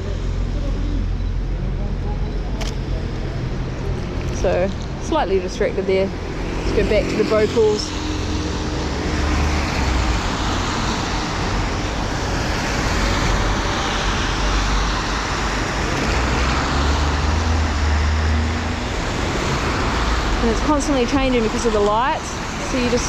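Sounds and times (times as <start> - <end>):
low engine rumble: 0.0 - 23.0
tyres hissing on wet street: 4.4 - 23.0.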